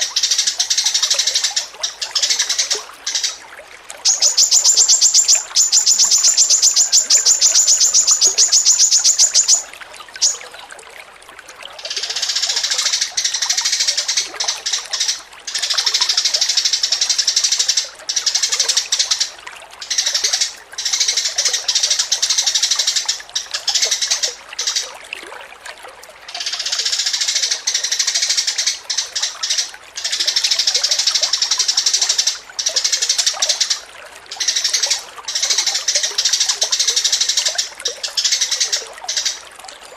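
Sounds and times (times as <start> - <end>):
songbird trilling and twittering: 4.0 - 10.4.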